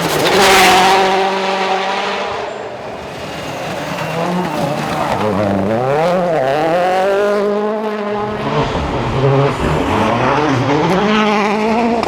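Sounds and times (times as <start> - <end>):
car engine revving hard: 0.0 - 12.0.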